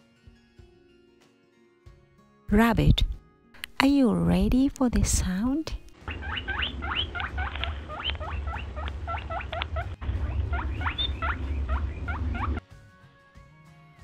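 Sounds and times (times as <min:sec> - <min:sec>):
rabbit squeaking: 0:06.0 - 0:12.6
low rumble: 0:06.1 - 0:12.6.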